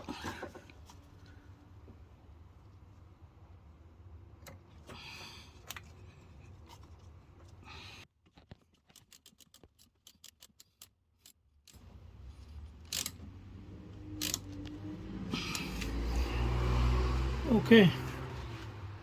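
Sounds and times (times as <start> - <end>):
metal parts clicking and scraping: 8.7 - 11.9, 12.5 - 13.2, 14.2 - 14.6
ratchet wrench clicking: 12.8 - 13.2, 14.2 - 14.7.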